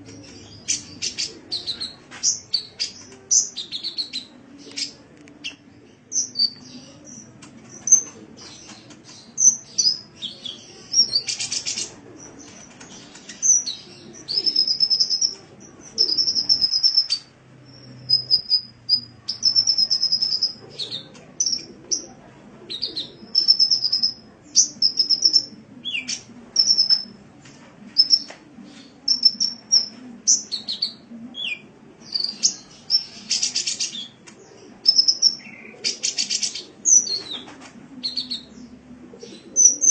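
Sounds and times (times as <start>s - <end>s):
bird chirping and trilling: 0.0s - 22.0s, 22.7s - 27.1s, 29.1s - 34.2s, 34.8s - 37.4s
harsh buzzy bird calls: 10.9s - 21.7s, 22.7s - 27.1s.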